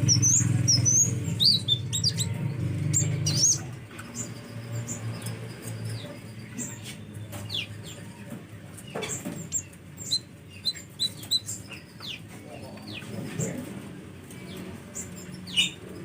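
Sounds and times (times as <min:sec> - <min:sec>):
sharp bird chips: 0:00.0 - 0:08.0, 0:08.8 - 0:13.1
bird chirping: 0:00.0 - 0:13.6, 0:14.3 - 0:16.0.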